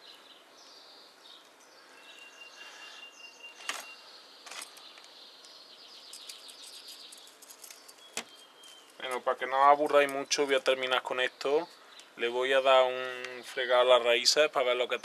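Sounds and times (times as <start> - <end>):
small birds chirping: 0.0 - 15.0
bird trill: 1.2 - 9.2.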